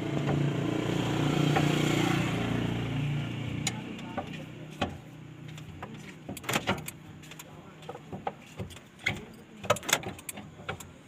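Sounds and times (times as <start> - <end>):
vehicle engine running: 0.0 - 6.2.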